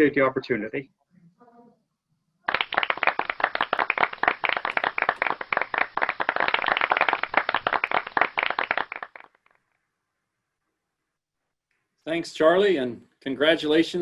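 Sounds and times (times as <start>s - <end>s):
hands clapping: 2.5s - 9.6s.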